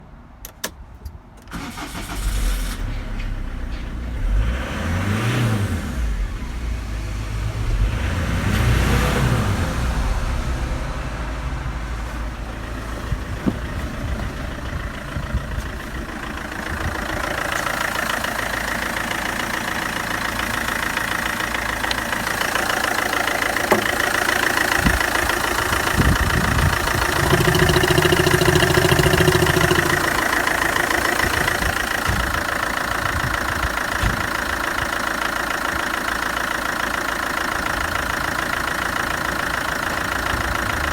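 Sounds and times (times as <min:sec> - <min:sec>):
diesel engine starting and revving: 0:01.4 - 0:40.9
starter clicks: 0:21.6 - 0:32.3.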